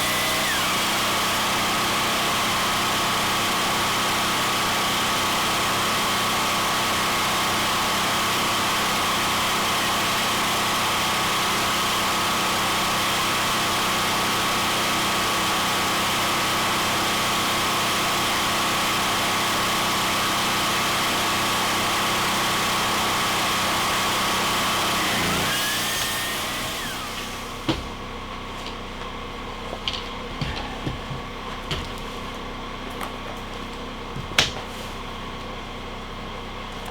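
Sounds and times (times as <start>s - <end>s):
motor-driven machine whining: 0.0s - 14.0s, 17.6s - 28.1s.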